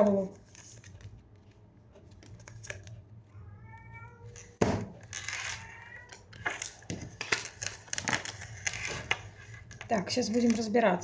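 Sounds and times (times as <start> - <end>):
cat meowing: 3.3 - 4.6, 5.4 - 6.3.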